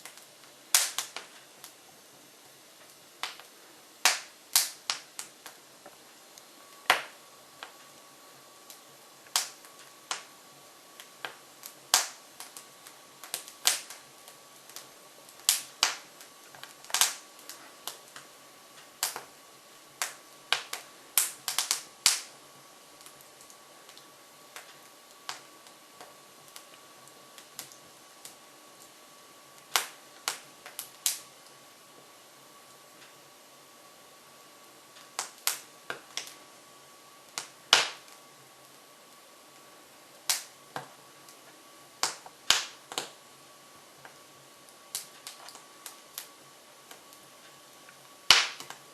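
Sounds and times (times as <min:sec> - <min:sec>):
sharp pops of fire: 0:00.0 - 0:01.9, 0:02.8 - 0:08.0, 0:08.6 - 0:10.4, 0:11.0 - 0:22.4, 0:23.0 - 0:29.0, 0:29.6 - 0:31.3, 0:34.9 - 0:36.5, 0:37.3 - 0:38.3, 0:40.2 - 0:41.4, 0:42.0 - 0:43.2, 0:44.8 - 0:47.6, 0:48.2 - 0:48.9
logs crackling in wood stove: 0:00.0 - 0:48.9.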